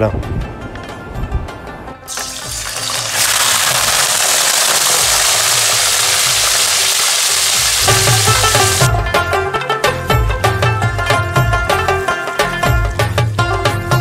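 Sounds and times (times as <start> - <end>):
chicken sizzling in hot oil: 2.1 - 8.9
plucked string music: 7.8 - 14.0.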